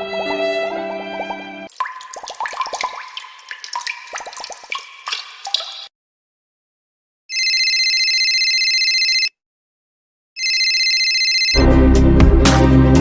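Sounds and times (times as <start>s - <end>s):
music: 0.0s - 1.7s, 11.6s - 13.0s
electronic telephone ringer trilling: 7.3s - 9.3s, 10.4s - 11.5s.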